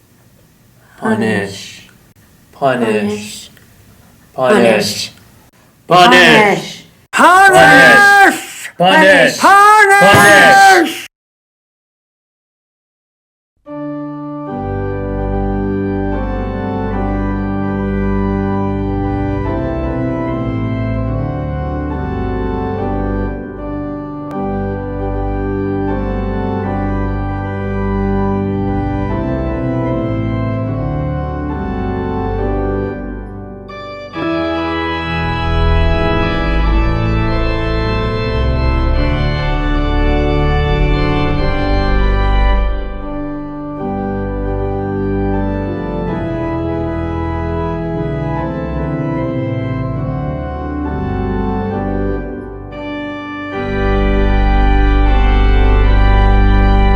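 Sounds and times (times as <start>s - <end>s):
organ playing slow chords: 13.7s - 56.9s.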